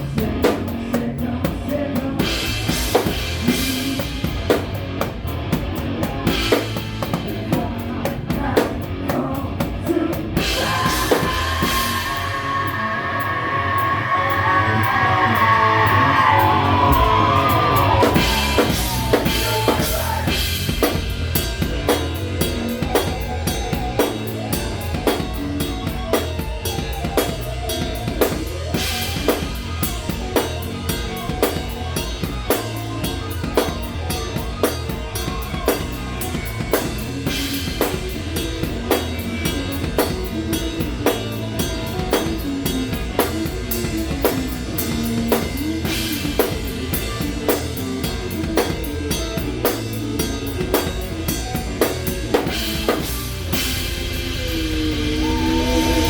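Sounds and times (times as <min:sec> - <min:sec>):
drum kit beat: 0:00.0 - 0:56.0
live rock band playing: 0:00.0 - 0:56.0
cymbal crashes: 0:10.4 - 0:21.5, 0:52.6 - 0:56.0.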